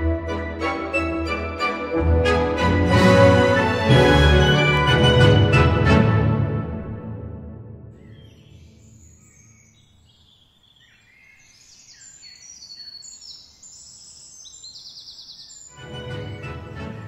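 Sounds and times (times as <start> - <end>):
music: 0.0 - 8.2, 15.7 - 17.0
birds singing: 8.0 - 15.9.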